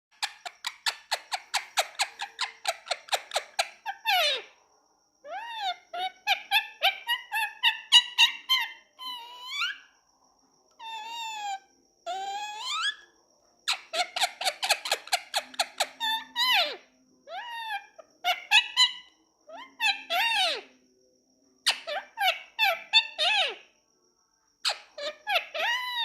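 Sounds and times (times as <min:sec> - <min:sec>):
parakeet chirping: 0:00.1 - 0:04.5, 0:05.3 - 0:09.8, 0:10.8 - 0:13.0, 0:13.7 - 0:16.8, 0:17.4 - 0:20.7, 0:21.7 - 0:23.6, 0:24.6 - 0:26.0
parakeet squawking: 0:00.1 - 0:04.5, 0:05.3 - 0:09.8, 0:10.8 - 0:13.0, 0:13.7 - 0:16.8, 0:17.4 - 0:20.7, 0:21.7 - 0:23.6, 0:24.7 - 0:26.0.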